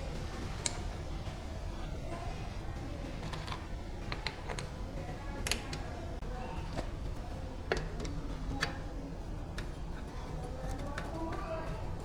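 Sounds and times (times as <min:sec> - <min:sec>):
tools clicking and tapping: 0:03.2 - 0:04.8.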